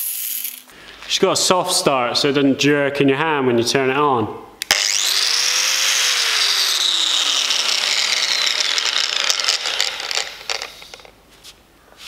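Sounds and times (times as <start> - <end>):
angle grinder whining: 4.6 - 11.1.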